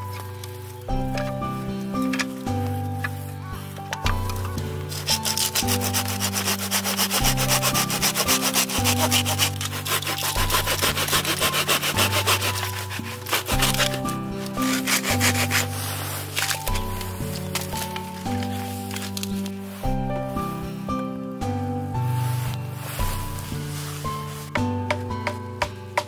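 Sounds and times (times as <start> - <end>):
background music: 0.0 - 26.0
saw rasping through wood: 4.9 - 17.9.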